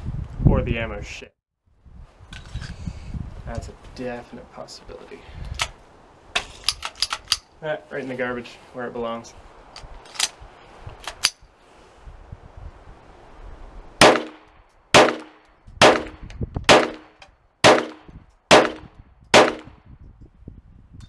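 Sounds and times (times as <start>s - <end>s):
gunshots with ringing tail: 14.0s - 14.4s, 15.0s - 19.7s.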